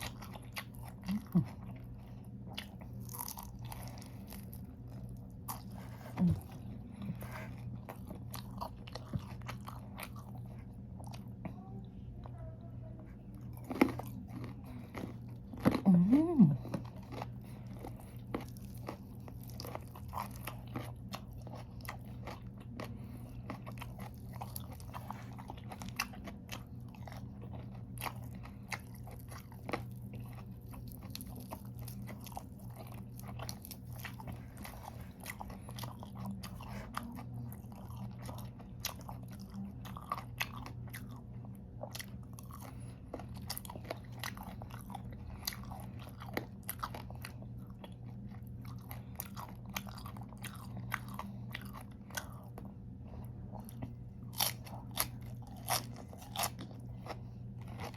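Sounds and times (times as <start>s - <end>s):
crunching raw vegetables: 13.4s - 57.9s.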